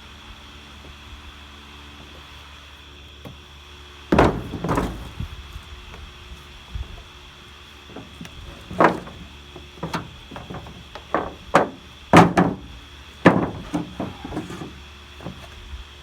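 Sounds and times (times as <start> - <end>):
objects knocking and thumping: 4.1 - 5.4, 7.9 - 15.6.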